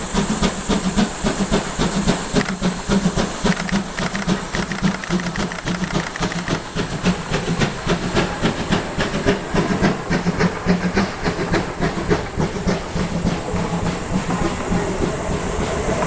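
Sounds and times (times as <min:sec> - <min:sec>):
steam locomotive chuffing: 0:00.0 - 0:16.0.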